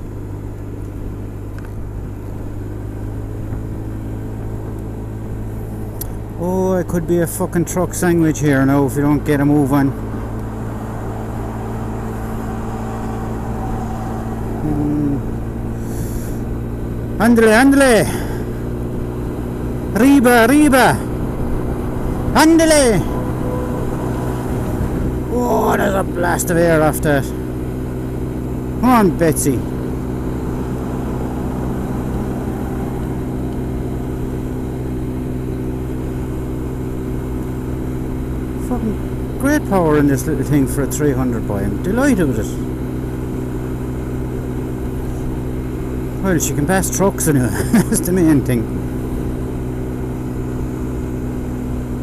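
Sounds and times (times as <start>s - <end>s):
scooter engine under hard throttle: 0.0s - 52.0s
wind and road noise: 0.0s - 52.0s.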